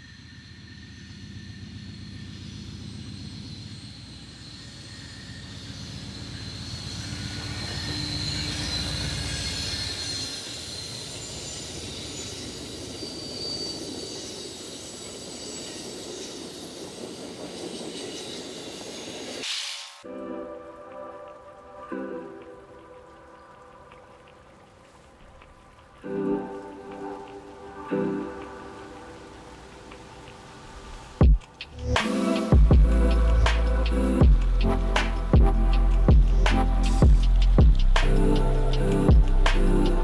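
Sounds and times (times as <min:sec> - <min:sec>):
train rumble: 0:00.0 - 0:19.5, 0:20.8 - 0:40.0
high wheel squeal: 0:00.0 - 0:20.1
wheel-on-rail noise: 0:00.0 - 0:40.0.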